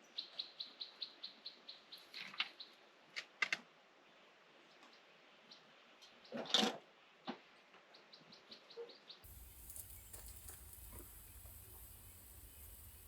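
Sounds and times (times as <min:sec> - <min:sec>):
small bird chirping: 0:00.0 - 0:02.8, 0:07.9 - 0:13.0
steady hiss: 0:09.2 - 0:13.0.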